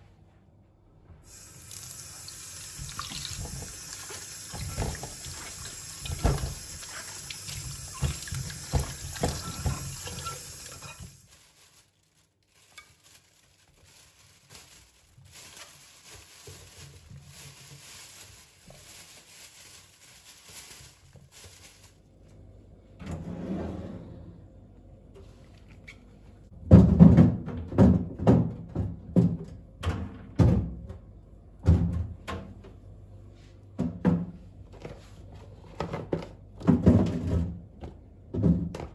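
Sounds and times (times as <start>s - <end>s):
tap water running into sink: 1.3s - 11.2s
loud dull thunks and knocks: 26.6s - 30.9s.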